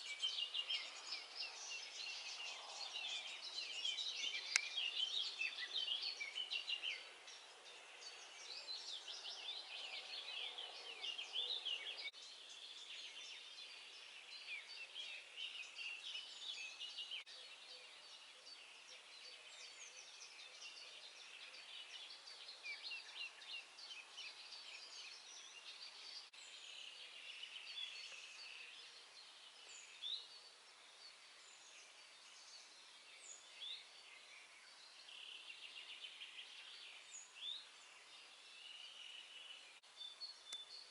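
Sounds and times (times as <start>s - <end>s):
songbirds chirping and trilling: 0.0s - 40.9s
faint hiss: 12.0s - 40.9s.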